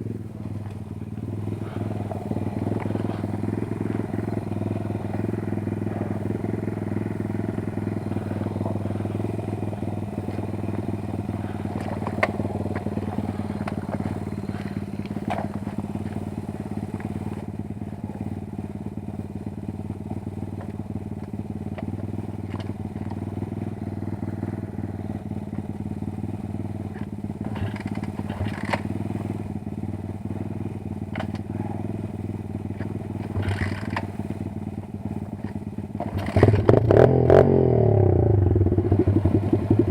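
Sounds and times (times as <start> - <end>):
motorbike engine running steadily: 0.0 - 39.9
clicks and clatters: 27.0 - 28.9, 32.8 - 34.1.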